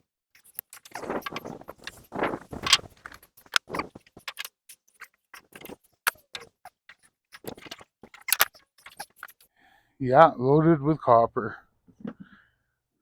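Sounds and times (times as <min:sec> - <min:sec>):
hand tools clinking on metal parts: 0:07.4 - 0:09.4.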